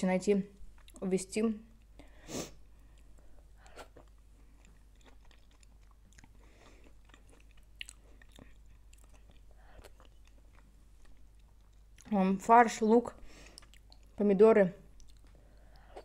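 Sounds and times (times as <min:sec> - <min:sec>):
faint chewing: 0:00.7 - 0:01.0, 0:02.8 - 0:12.2, 0:13.3 - 0:14.2, 0:14.9 - 0:16.0.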